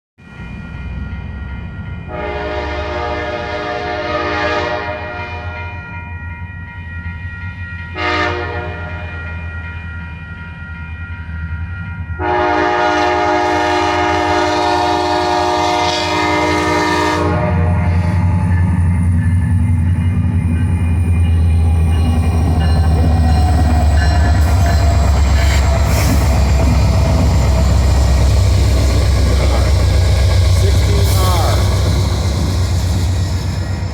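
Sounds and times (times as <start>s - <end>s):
locomotive air horn blasts: 2.1s - 5.8s, 8.0s - 9.1s, 12.2s - 18.2s
locomotive rumble: 12.2s - 33.9s.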